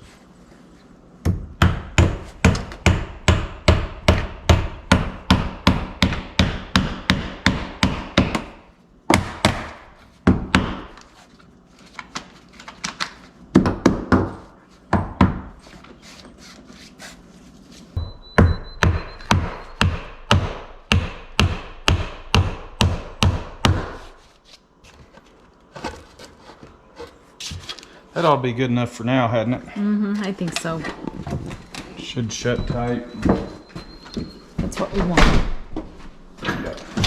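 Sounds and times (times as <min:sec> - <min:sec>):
hammer driving nails into wood: 0:01.6 - 0:11.0, 0:18.4 - 0:24.1.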